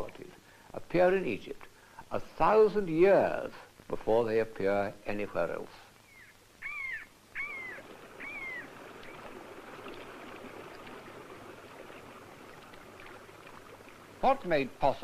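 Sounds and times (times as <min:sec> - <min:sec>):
bird crying: 0:06.0 - 0:09.3
rushing water: 0:06.7 - 0:15.0.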